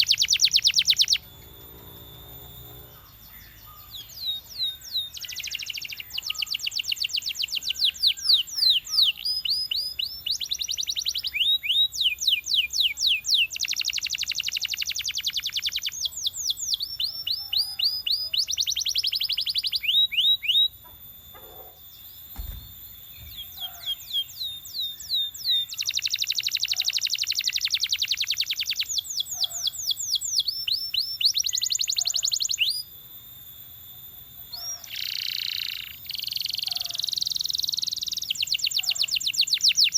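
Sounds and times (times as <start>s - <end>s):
canary singing trills: 0.0s - 39.9s
low thump: 22.3s - 23.5s.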